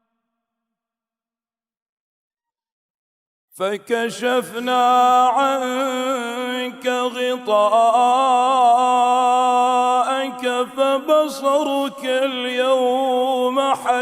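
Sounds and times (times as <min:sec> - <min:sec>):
man chanting recitation: 0:03.6 - 0:14.0.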